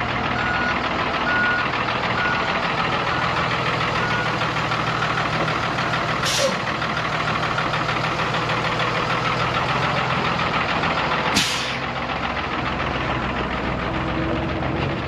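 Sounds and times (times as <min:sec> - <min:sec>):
diesel bus engine running: 0:00.0 - 0:15.0
air hiss: 0:11.4 - 0:11.9.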